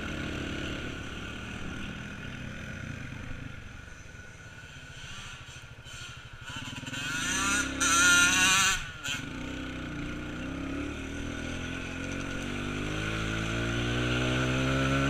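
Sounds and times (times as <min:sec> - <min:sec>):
off-road vehicle engine revving: 0:05.4 - 0:15.0.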